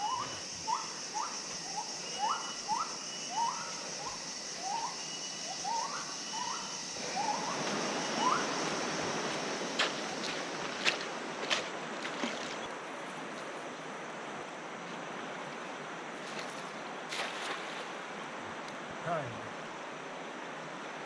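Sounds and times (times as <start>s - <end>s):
steady high drone: 0.0s - 11.3s
river water rushing: 7.0s - 13.3s.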